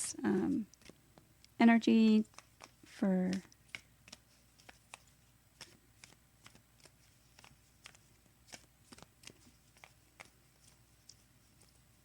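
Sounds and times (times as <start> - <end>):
cards clicking: 0.7 - 1.6, 2.2 - 11.8.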